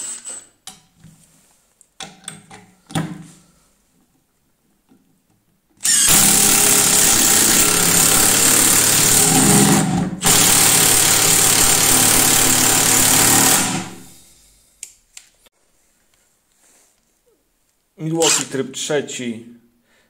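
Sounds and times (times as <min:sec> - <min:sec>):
impact wrench hammering screw: 0:05.8 - 0:14.2.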